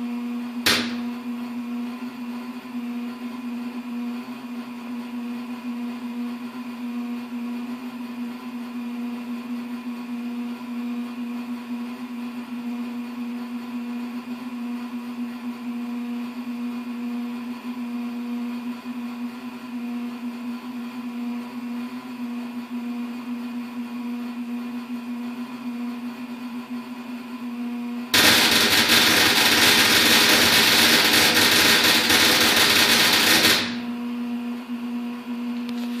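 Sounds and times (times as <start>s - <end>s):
furnace humming: 0.0s - 1.8s, 27.8s - 36.0s
harsh crackling rush: 28.2s - 33.8s.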